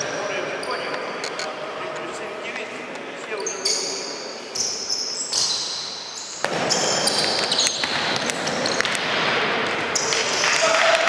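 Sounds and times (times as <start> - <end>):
shoes squeaking on floor: 0.0 - 1.6, 3.2 - 9.0
reverberant hall noise: 0.0 - 11.0
ball kicked and bouncing: 6.4 - 10.1.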